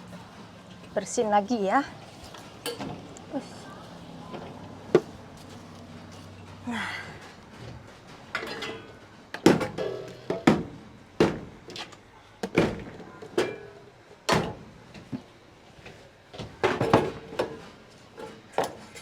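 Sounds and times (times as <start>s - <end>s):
kitchen containers and utensils clanking: 2.6s - 3.0s, 8.3s - 10.6s, 12.6s - 14.5s.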